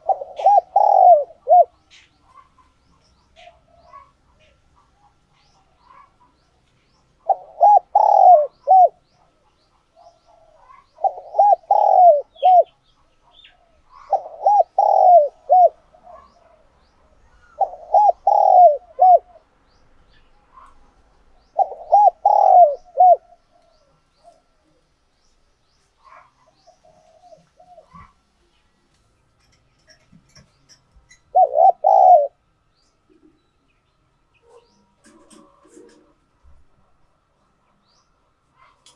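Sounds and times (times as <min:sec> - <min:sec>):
dove cooing: 0:00.0 - 0:05.2, 0:07.2 - 0:09.0, 0:10.0 - 0:12.8, 0:13.4 - 0:19.5, 0:21.5 - 0:24.8, 0:26.1 - 0:28.2, 0:31.1 - 0:32.4, 0:34.4 - 0:36.2.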